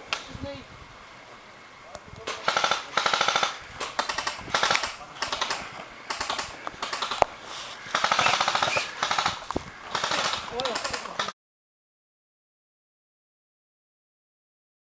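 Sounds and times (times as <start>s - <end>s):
airsoft guns firing full-auto: 2.3s - 7.3s, 7.9s - 11.3s.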